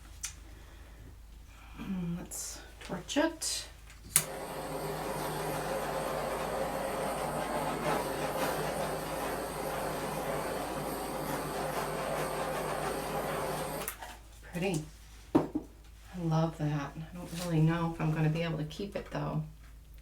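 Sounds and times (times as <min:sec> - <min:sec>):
torch hissing: 0:04.2 - 0:13.9.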